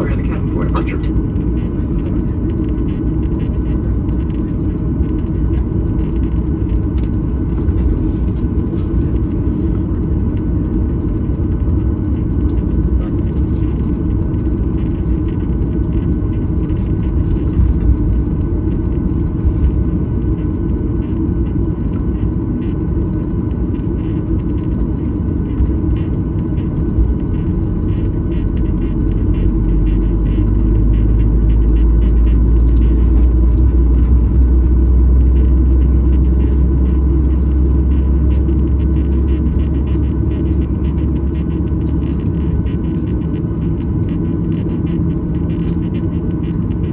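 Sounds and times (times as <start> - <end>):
jet engines rumbling: 0.0 - 46.9.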